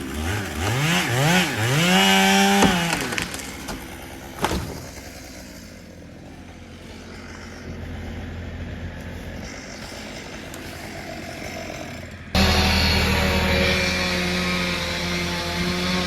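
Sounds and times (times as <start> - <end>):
chainsaw revving: 0.0 - 16.0
wood cracking: 0.0 - 16.0
low engine running: 3.3 - 16.0.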